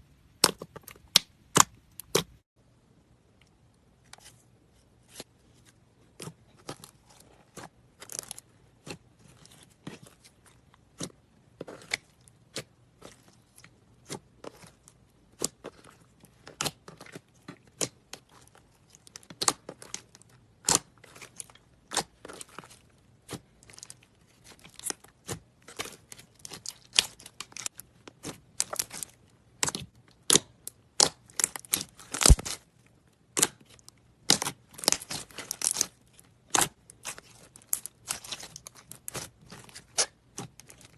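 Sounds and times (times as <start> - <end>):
slime squeezed with sticky pops: 29.6 - 32.6.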